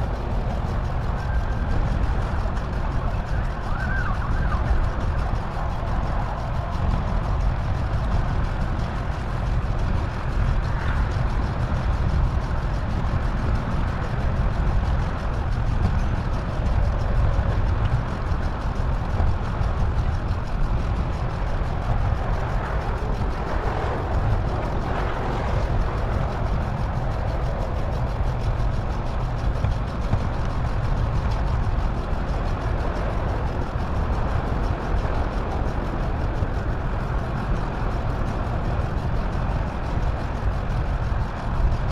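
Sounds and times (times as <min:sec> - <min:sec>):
bicycle road noise: 0:00.0 - 0:41.9
wind rushing: 0:13.9 - 0:38.8.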